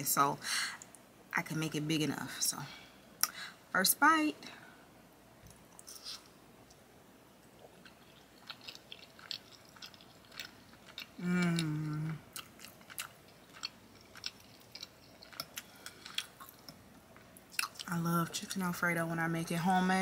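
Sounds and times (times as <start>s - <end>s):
wet chewing mouth sounds: 7.6s - 16.8s
person humming mmm: 11.2s - 12.3s.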